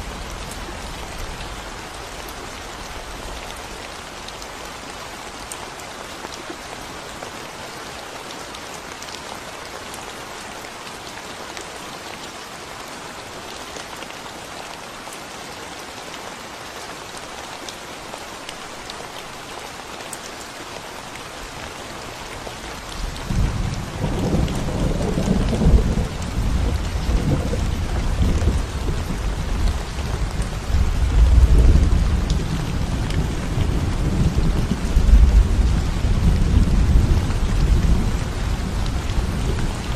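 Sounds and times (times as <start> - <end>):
rain on a concrete road: 0.0 - 39.9
thunder rumbling: 23.3 - 39.9.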